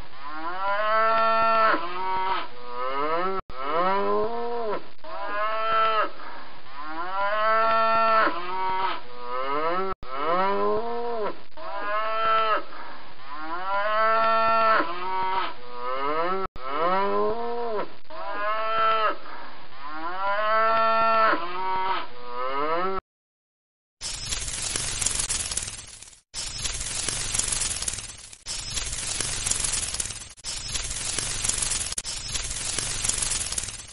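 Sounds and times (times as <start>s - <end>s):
cow mooing: 0.2s - 23.0s.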